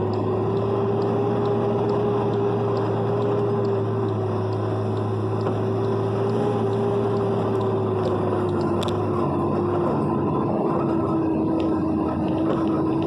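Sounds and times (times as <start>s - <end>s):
faint ticks: 0.0s - 9.2s
road and rain noise: 0.0s - 13.0s
vehicle engine drone: 0.0s - 13.0s.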